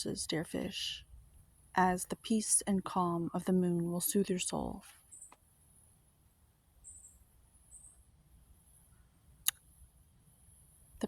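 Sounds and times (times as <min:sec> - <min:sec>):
faint high-pitched chirps: 0:06.8 - 0:08.1.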